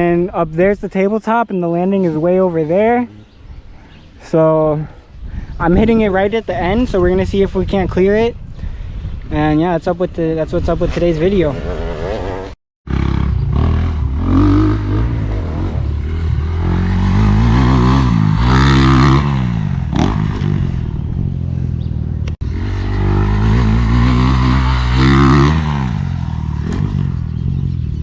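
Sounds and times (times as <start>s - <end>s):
dirt bike engine revving: 11.6s - 28.0s.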